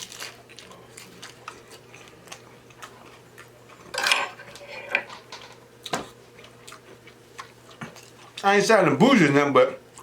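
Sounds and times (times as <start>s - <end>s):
cutlery and dishes clattering: 3.9s - 5.6s.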